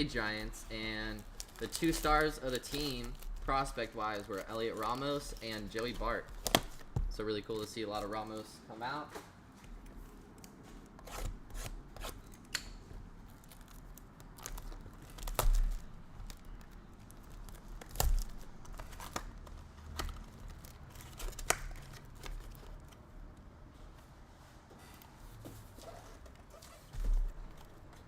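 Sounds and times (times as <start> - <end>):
packaging tearing and crinkling: 0.1 - 8.5, 13.2 - 23.0.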